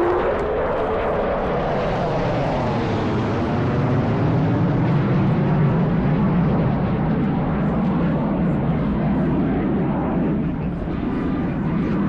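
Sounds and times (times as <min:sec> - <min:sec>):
jet flyby roar: 0:00.0 - 0:06.2.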